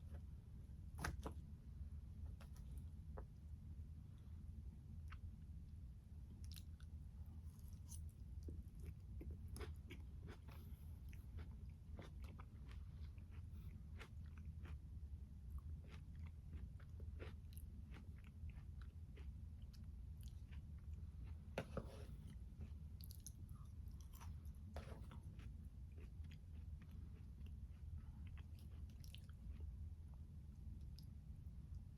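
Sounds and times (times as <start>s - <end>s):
chewing and crunching: 6.4s - 31.2s.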